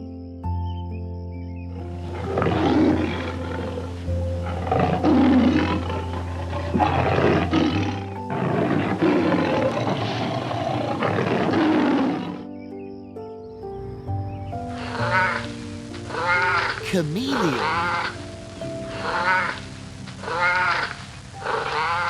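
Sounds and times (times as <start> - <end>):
background music: 0.0 - 22.0
large animal roaring: 2.2 - 12.4.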